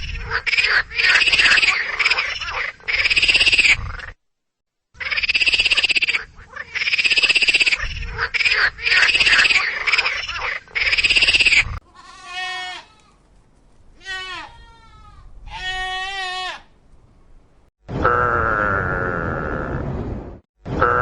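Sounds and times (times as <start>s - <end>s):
loud rasping animal calls: 0.0s - 4.2s, 5.0s - 12.6s
faint falling bleat: 11.8s - 13.2s, 14.0s - 16.7s.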